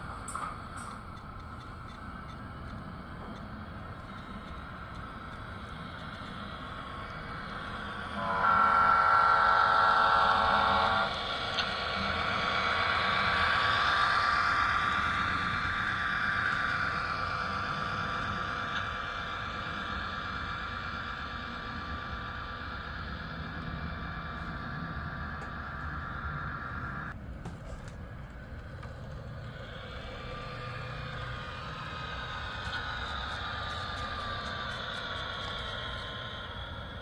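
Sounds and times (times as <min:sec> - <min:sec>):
locomotive horn from small speaker: 0:08.2 - 0:11.1.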